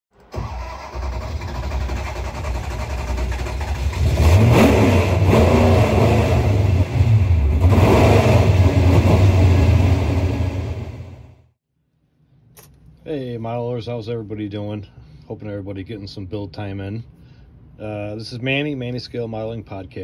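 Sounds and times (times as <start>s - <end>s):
car engine revving: 0.5s - 11.4s.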